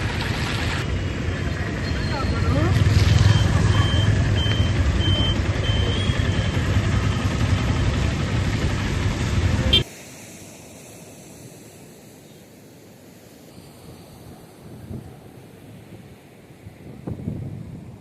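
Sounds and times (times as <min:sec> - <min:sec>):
vehicle rumble: 0:00.0 - 0:09.9
short high electronic beeps: 0:01.8 - 0:07.3
steady hiss: 0:06.8 - 0:18.0.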